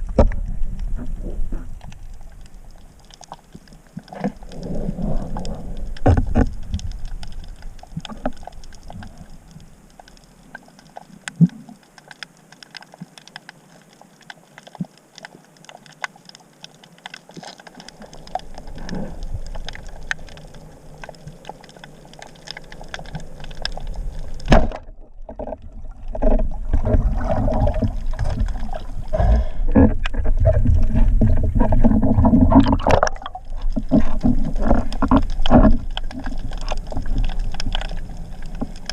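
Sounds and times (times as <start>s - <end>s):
underwater clicks and crackles: 0.0s - 38.9s
water rushing and gurgling: 0.0s - 38.9s.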